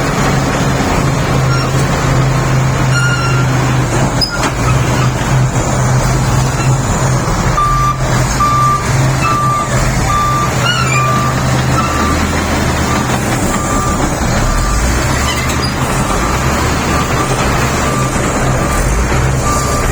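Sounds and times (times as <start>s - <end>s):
bulldozer diesel engine running: 0.0s - 19.9s
reversing alarm beeping: 7.5s - 19.9s.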